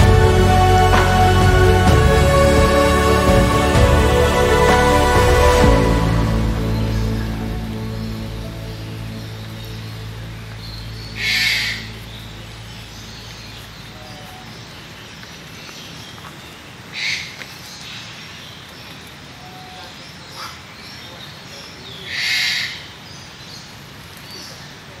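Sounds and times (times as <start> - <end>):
outdoor background hiss: 0.0 - 25.0
harsh hiss-like bird calls: 8.0 - 25.0.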